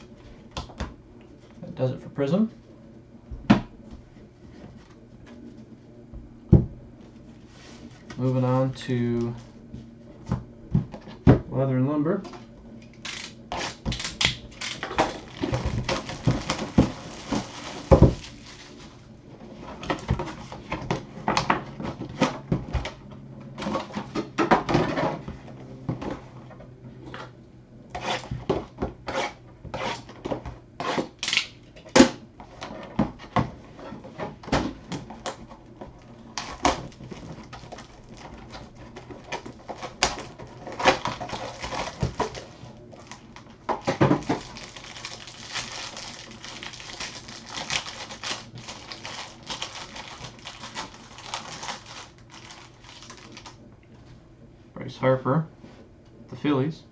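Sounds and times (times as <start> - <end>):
cardboard and wrappers crinkling: 13.0 - 20.8, 33.9 - 53.6.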